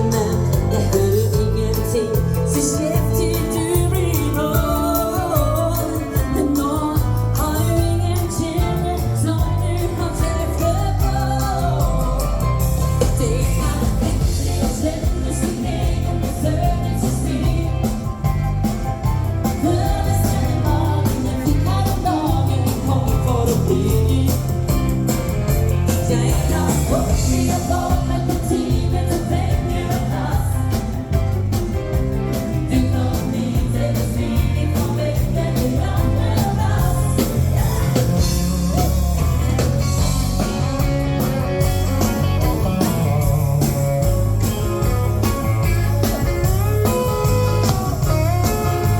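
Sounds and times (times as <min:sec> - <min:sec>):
woman singing: 0:00.0 - 0:18.5, 0:19.4 - 0:25.0, 0:25.7 - 0:31.3, 0:32.3 - 0:38.9
dance band music: 0:00.0 - 0:48.9.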